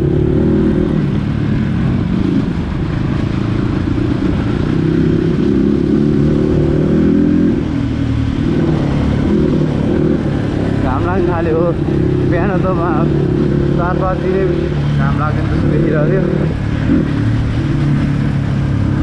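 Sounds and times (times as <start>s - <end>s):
dirt bike engine revving: 4.0s - 19.0s.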